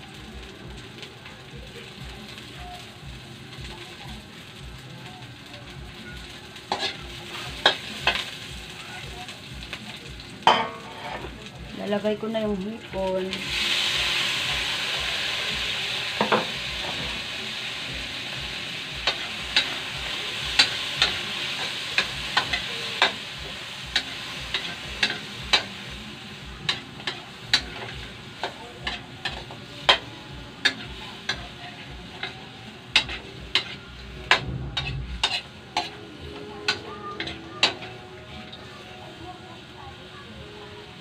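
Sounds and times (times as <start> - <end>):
shrimp sizzling in oil: 0.0 - 41.0
spatula scraping wok: 6.6 - 8.4, 10.5 - 11.4, 18.7 - 39.0.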